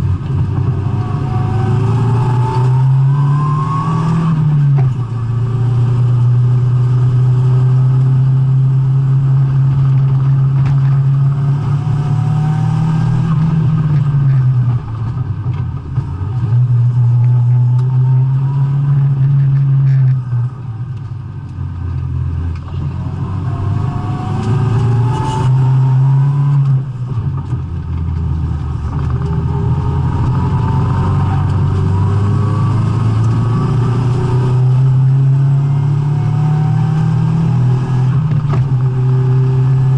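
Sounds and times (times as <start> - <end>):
car engine revving hard: 0.0 - 14.4, 22.9 - 27.0, 28.6 - 39.9.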